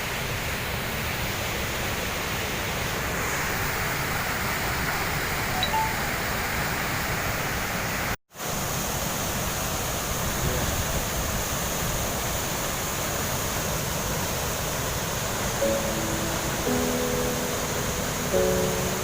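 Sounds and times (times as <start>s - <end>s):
waterfall rushing: 0.3s - 7.0s, 10.9s - 19.0s.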